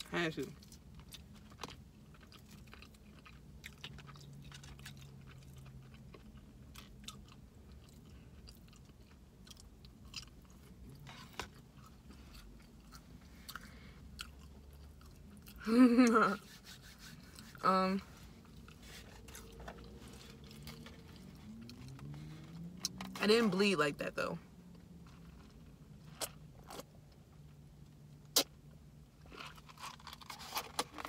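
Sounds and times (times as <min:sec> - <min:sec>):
person chewing food: 0:00.6 - 0:15.6, 0:18.4 - 0:23.1.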